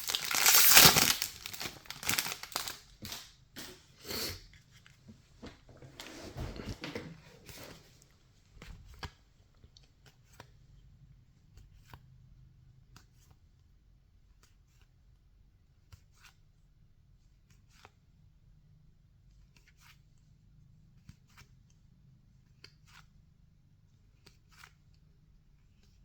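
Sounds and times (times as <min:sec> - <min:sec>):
trading cards rustling: 0:00.0 - 0:03.8.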